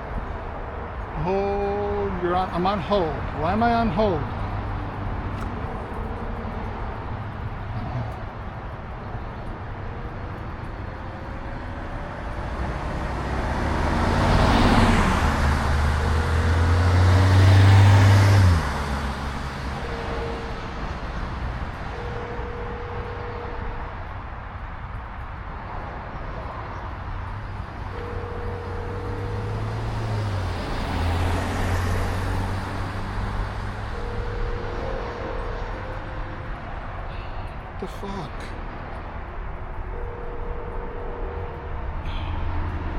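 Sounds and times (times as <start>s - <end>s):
short steady tones: 19.2s - 25.3s, 27.4s - 31.4s, 33.2s - 42.9s.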